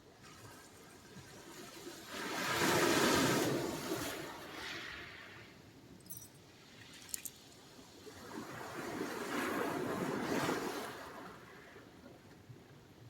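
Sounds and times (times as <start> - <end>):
faint high clicks: 6.0 - 7.5.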